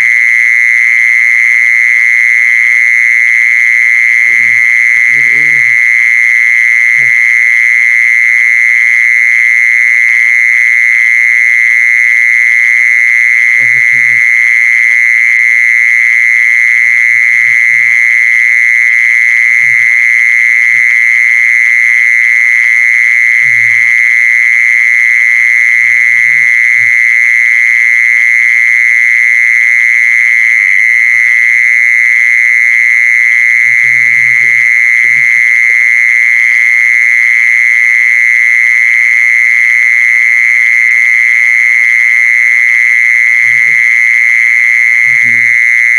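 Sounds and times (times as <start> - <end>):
insect buzzing trill: 4.0 - 7.6, 13.5 - 14.4, 33.3 - 36.1, 43.3 - 45.9.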